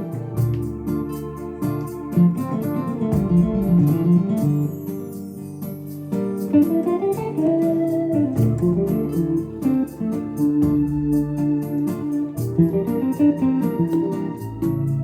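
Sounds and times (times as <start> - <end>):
keyboard melody and chords: 0.0 - 15.0
drum beat: 2.2 - 4.6, 8.2 - 13.2.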